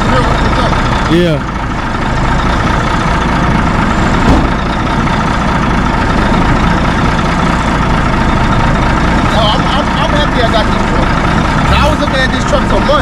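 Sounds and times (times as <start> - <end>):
heavy truck engine idling: 0.0 - 13.0
short thump: 4.2 - 4.6.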